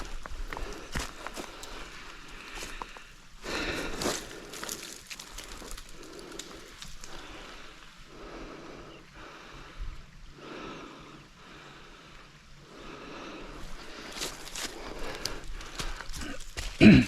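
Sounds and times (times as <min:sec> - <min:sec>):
person breathing hard: 0:00.0 - 0:17.0.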